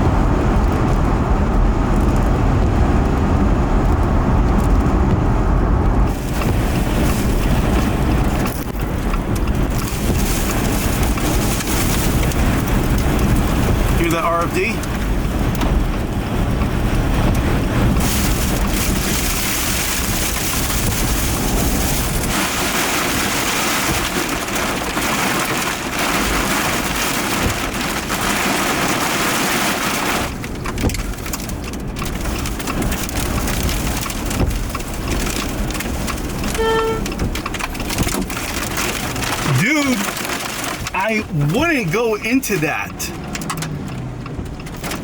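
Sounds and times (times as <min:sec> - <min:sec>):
heavy rain beating on vehicle: 0:00.0 - 0:45.0
short electronic beep: 0:36.6 - 0:37.0.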